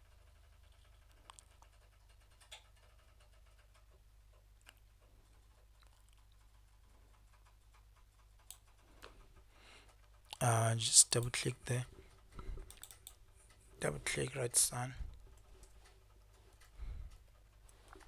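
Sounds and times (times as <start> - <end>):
computer mouse clicks: 0.7 - 9.2, 12.6 - 13.6
faint hum: 10.3 - 15.5.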